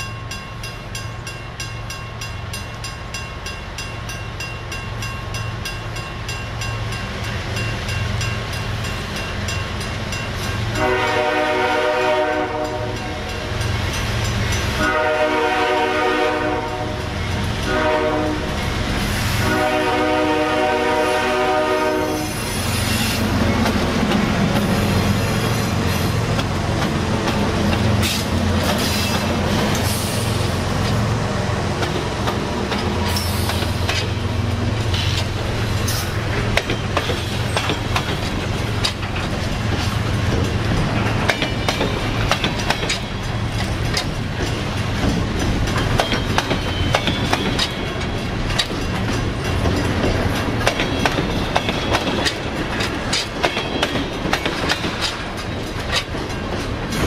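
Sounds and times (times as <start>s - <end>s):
diesel locomotive rumble: 5.9s - 57.0s
train horn blasts: 10.7s - 13.3s, 14.8s - 22.6s
wheel clatter over rail joints: 31.7s - 57.0s.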